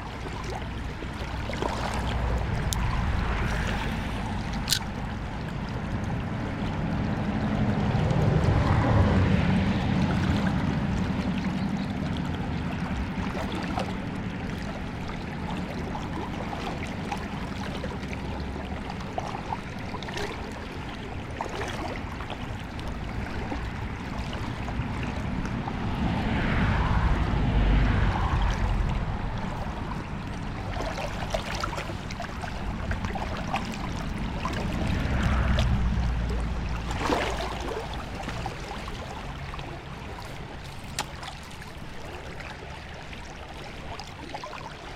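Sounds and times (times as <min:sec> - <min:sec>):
river water rushing and gurgling: 0:00.0 - 0:44.9
low rumble: 0:00.5 - 0:13.3, 0:22.5 - 0:40.6.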